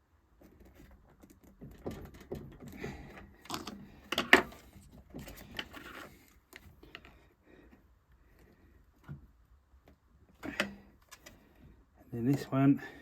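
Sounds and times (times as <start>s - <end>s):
hands handling plastic parts: 0.4s - 7.1s.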